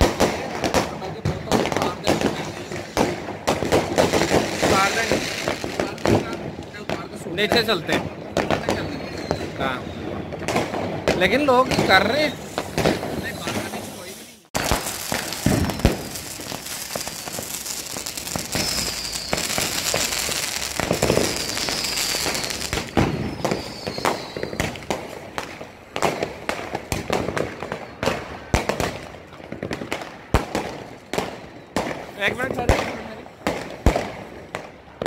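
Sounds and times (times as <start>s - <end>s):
fireworks crackling and banging: 0.0s - 35.0s
firework whistles falling in pitch: 8.4s - 10.6s, 11.4s - 24.9s.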